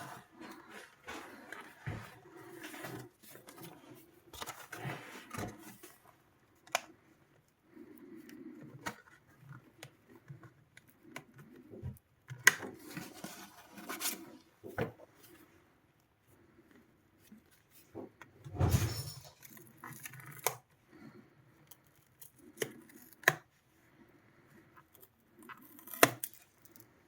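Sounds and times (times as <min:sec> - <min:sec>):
scraping and rubbing: 0:00.0 - 0:06.1.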